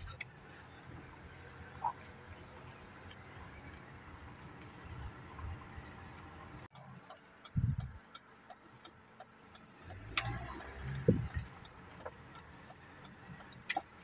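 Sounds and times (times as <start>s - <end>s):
faint mechanical ticking: 0.0s - 14.0s
low rumble and thump: 11.0s - 11.5s.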